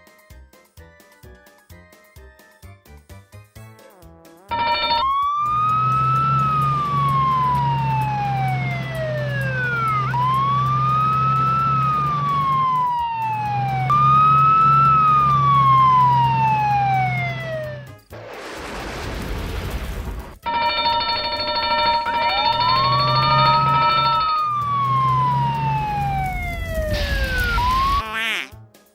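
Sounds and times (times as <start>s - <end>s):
fire engine siren wailing: 4.5s - 18.0s, 20.5s - 28.0s
low engine hum: 5.4s - 17.9s, 22.7s - 28.0s.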